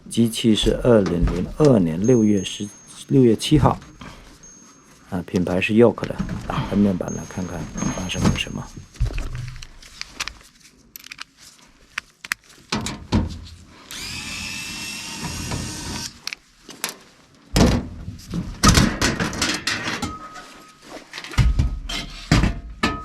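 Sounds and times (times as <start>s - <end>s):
power driver whirring: 13.9s - 16.2s.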